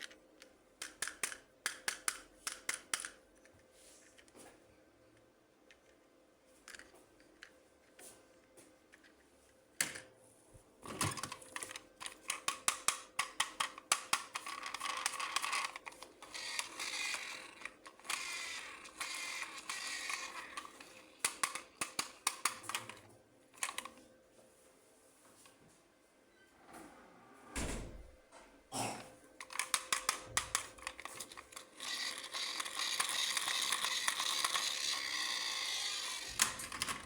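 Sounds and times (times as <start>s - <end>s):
plastic parts clicking and snapping: 0.0s - 3.2s, 10.8s - 23.0s, 23.6s - 24.0s, 29.4s - 37.0s.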